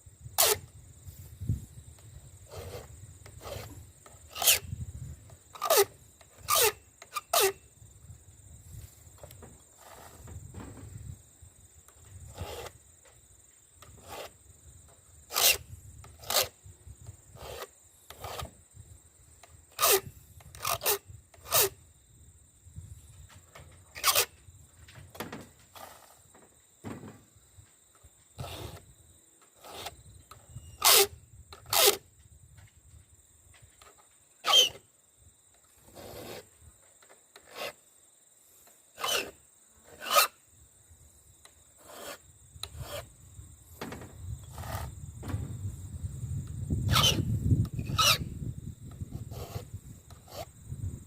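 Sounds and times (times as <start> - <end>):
file scraping chainsaw chain: 0.4 - 0.6, 2.5 - 3.7, 4.3 - 4.6, 5.6 - 7.6, 12.3 - 12.8, 13.9 - 14.3, 15.3 - 16.5, 17.4 - 18.5, 19.7 - 21.8, 24.0 - 24.3, 28.4 - 28.8, 29.6 - 30.0, 30.8 - 32.0, 34.4 - 34.8, 35.8 - 36.4, 37.4 - 37.8, 39.0 - 40.4, 41.8 - 43.1, 44.5 - 44.9, 46.9 - 47.2, 47.8 - 48.2, 49.1 - 50.5.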